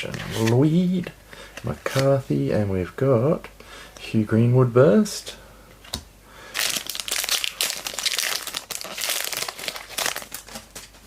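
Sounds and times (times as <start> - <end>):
plastic wrapper crinkling: 6.5 - 11.0.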